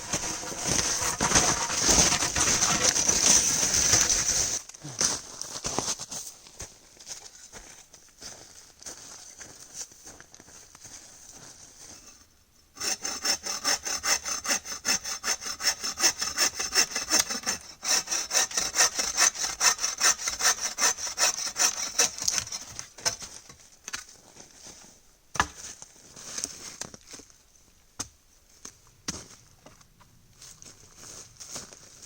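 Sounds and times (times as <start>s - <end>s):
hand saw cutting wood: 0.0s - 4.6s, 12.8s - 23.3s.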